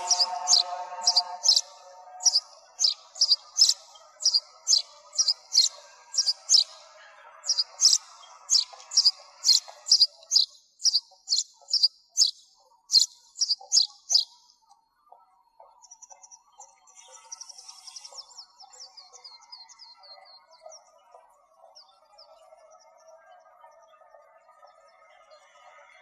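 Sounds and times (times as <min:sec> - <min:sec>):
sparrow chirping: 0:00.0 - 0:14.4
faint low background noise: 0:00.0 - 0:26.0.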